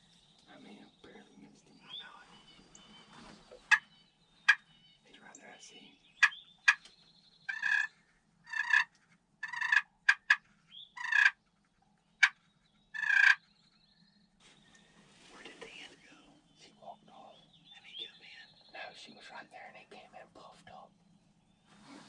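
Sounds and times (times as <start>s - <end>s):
turkey clucking: 6.2s - 6.9s, 7.5s - 7.9s, 8.5s - 10.4s, 11.0s - 11.4s, 13.0s - 13.4s
turkeys gobbling: 7.5s - 7.9s, 8.5s - 10.4s, 11.0s - 11.4s, 13.0s - 13.4s.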